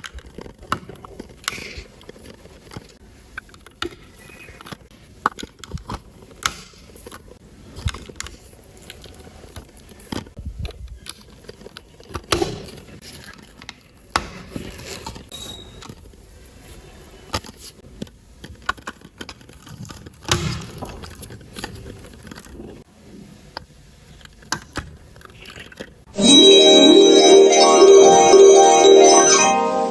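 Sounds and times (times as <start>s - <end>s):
music with bell-like melody: 26.2s - 29.9s.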